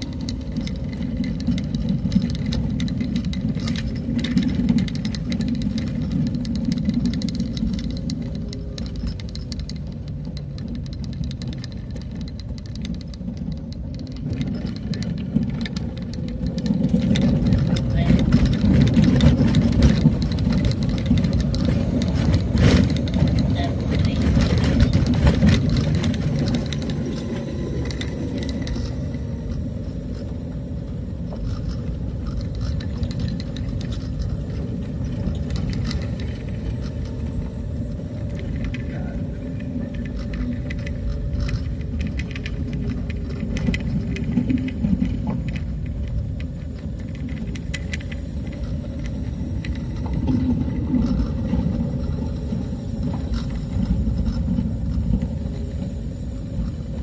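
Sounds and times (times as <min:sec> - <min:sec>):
cabin rattles and clicks: 0:00.0 - 0:30.2
vehicle low rumble: 0:00.0 - 0:57.0.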